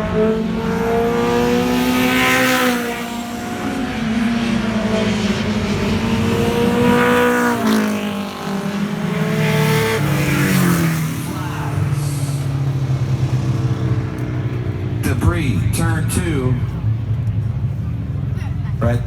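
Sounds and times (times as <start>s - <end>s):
race cars passing by: 0.0s - 19.0s.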